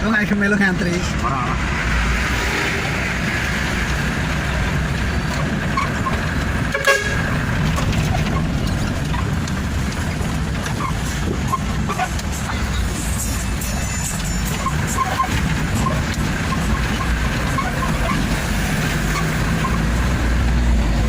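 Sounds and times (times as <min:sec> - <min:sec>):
truck engine and road drone: 0:00.0 - 0:21.0
truck horn toot: 0:06.6 - 0:07.4.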